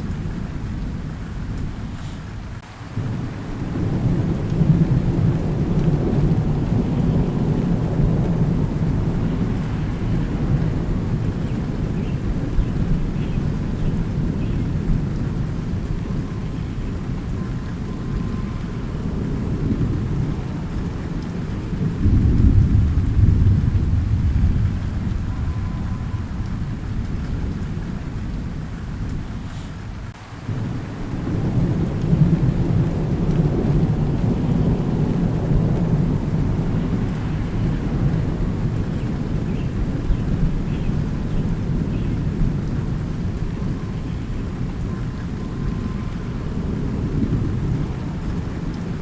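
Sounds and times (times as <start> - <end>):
rolling thunder: 0.0 - 49.0
steady rain: 0.0 - 49.0.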